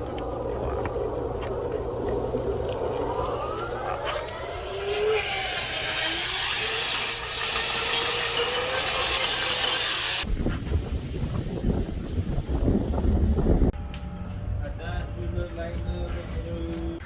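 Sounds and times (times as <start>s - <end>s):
low rumble: 0.0s - 5.8s
faint wavering whine: 0.0s - 6.3s
rushing air hiss: 0.0s - 10.3s.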